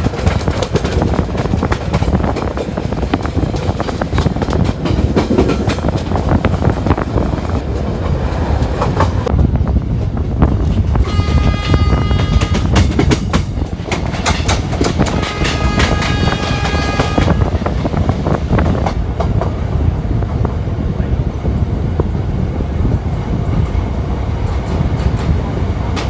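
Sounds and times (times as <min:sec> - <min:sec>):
wheels clicking over rail joints: 0:00.0 - 0:09.3, 0:10.0 - 0:19.6
train rumbling on rails: 0:00.0 - 0:26.0
train horn: 0:11.0 - 0:13.0, 0:14.9 - 0:17.6.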